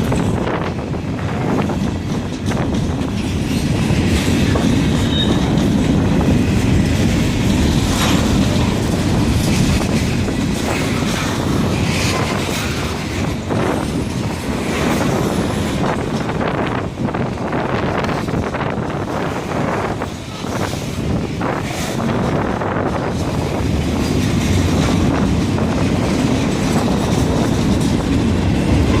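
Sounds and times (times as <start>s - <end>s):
clicking over rail joints: 0.0s - 29.0s
train wheels rumbling on rail: 0.0s - 29.0s
high wheel squeals: 5.0s - 5.6s.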